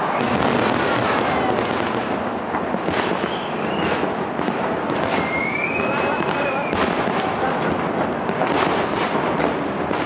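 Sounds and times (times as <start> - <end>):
fireworks crackling: 0.0 - 10.0
fireworks popping and banging: 0.0 - 10.0
faint gliding whistles: 3.2 - 4.0, 5.2 - 6.7.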